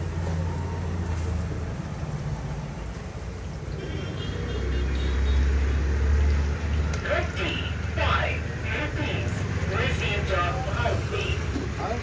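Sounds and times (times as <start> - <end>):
road traffic engine rumble: 0.0 - 12.0.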